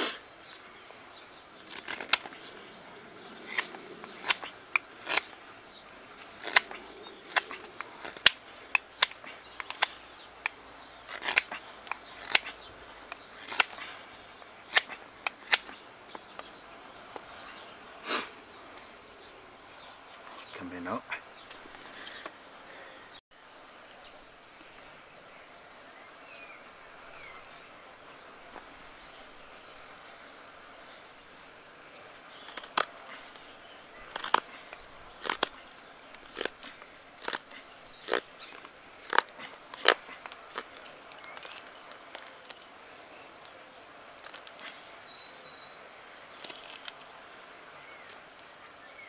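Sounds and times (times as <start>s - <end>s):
knife carving wood snaps: 1.7s - 2.4s, 3.4s - 14.0s, 14.7s - 16.5s, 32.4s - 42.7s, 46.4s - 47.3s.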